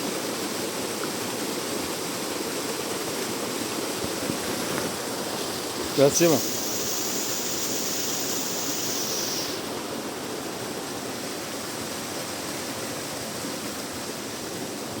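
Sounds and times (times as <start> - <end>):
small waterfall rushing: 0.0 - 15.0
thin high hiss: 4.4 - 10.4.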